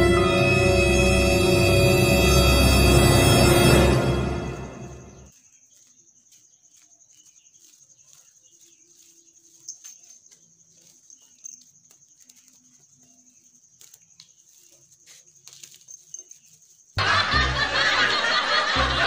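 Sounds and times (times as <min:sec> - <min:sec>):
loud music: 0:00.0 - 0:05.3, 0:17.0 - 0:19.0
steady high whine: 0:00.0 - 0:05.3
canned laughter: 0:17.0 - 0:19.0.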